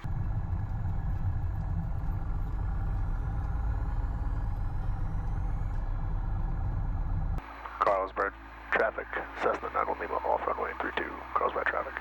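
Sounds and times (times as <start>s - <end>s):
airplane engine running at low power: 0.0s - 12.0s.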